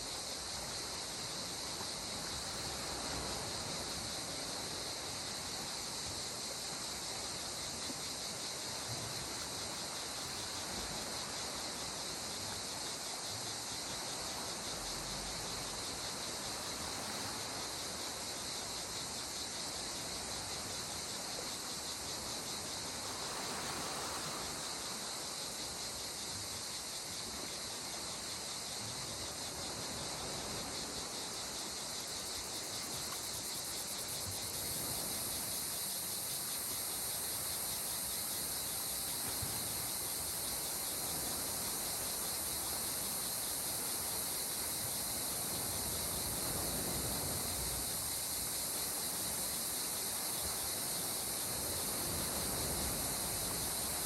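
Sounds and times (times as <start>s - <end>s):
calm sea water: 0.0s - 54.0s
insects chorus: 0.0s - 54.0s.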